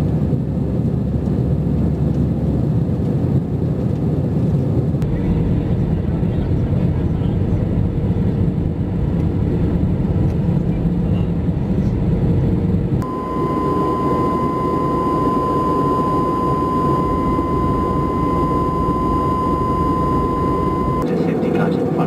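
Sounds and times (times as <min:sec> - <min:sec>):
airliner cabin noise: 0:00.0 - 0:22.0
steady high whine: 0:11.8 - 0:21.6.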